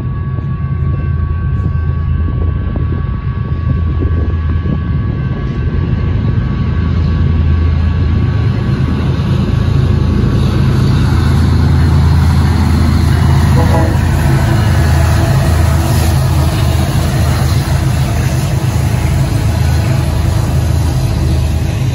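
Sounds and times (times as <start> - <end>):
diesel locomotives rumbling: 0.0 - 21.9
crossing bell ringing: 13.1 - 16.5.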